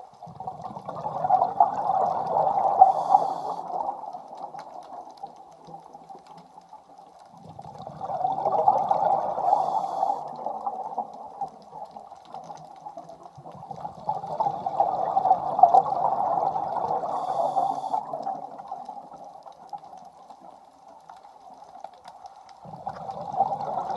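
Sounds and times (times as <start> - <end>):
exhaled bubbles underwater: 0.0 - 23.9
diver breathing through regulator: 2.8 - 3.8, 9.4 - 10.4, 17.1 - 18.1
inhaled breath hiss: 2.8 - 3.8, 9.4 - 10.4, 17.1 - 18.2.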